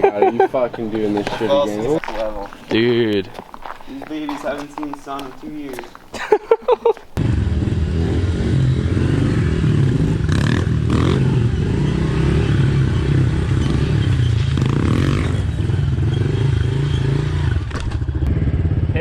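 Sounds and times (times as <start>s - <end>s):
motorbike engine running: 7.2s - 19.0s.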